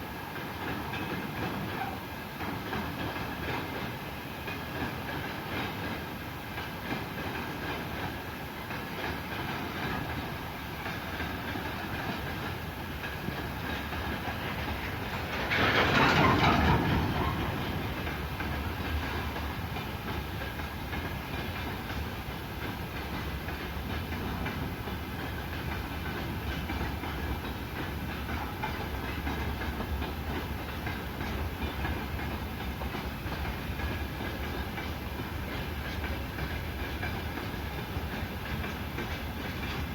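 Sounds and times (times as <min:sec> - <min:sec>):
train rumbling past: 0:00.0 - 0:39.9
wheels clicking over rail joints: 0:08.7 - 0:39.9.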